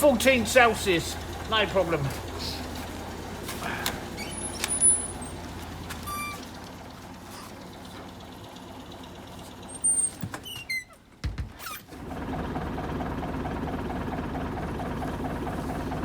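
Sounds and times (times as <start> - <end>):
tractor engine idling: 0.0 - 11.2, 11.9 - 16.0
short high squeaks and chirps: 4.2 - 5.4, 6.0 - 6.5.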